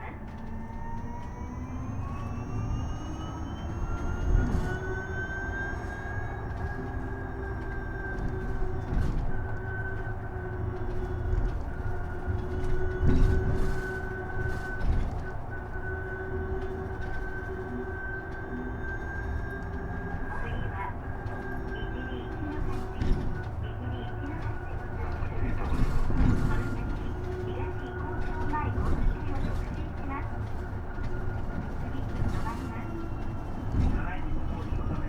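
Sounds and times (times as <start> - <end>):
bus bumps: 0.0 - 35.0
electric bus motor whine: 0.0 - 35.0
road rumble: 0.0 - 35.0.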